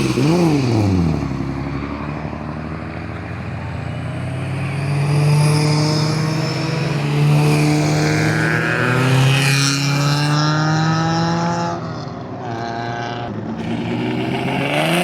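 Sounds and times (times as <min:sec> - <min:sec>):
vehicle engine at high revs: 0:00.0 - 0:02.0, 0:03.0 - 0:11.8, 0:12.4 - 0:15.0.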